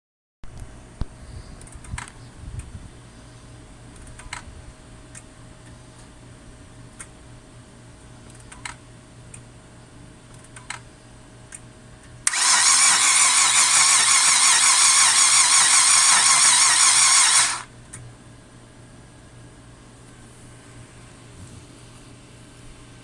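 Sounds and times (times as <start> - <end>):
starter motor cranking engine: 12.3 - 17.7.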